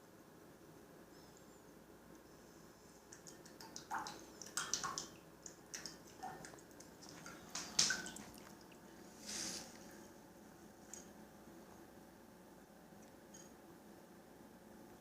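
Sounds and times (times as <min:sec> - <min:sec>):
animal splashing water: 0:03.1 - 0:09.0.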